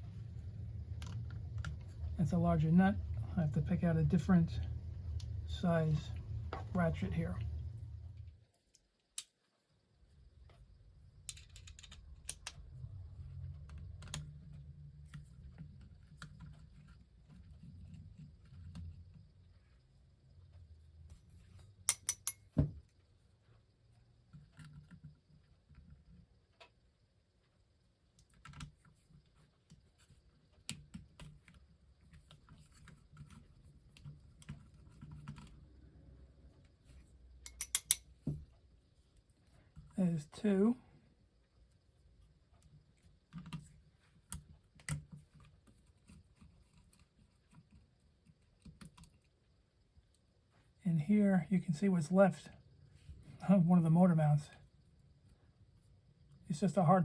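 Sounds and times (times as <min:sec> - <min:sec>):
small metal parts tapping: 0:11.3 - 0:12.5, 0:21.9 - 0:22.5, 0:37.4 - 0:38.1
socket ratchet clicking: 0:21.9 - 0:22.4, 0:37.5 - 0:38.0.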